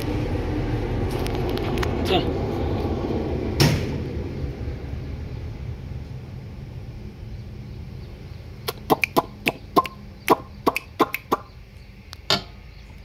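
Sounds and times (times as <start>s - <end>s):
bird clucking: 8.7s - 11.6s.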